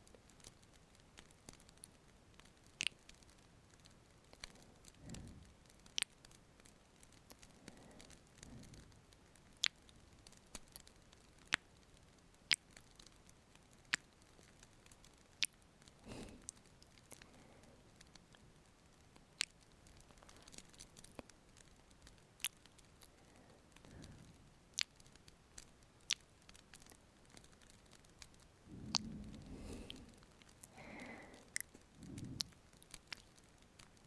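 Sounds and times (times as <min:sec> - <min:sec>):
crackling fireplace: 0:00.0 - 0:34.0
soft breaths: 0:00.0 - 0:34.0
wet lip smacks: 0:28.7 - 0:33.3.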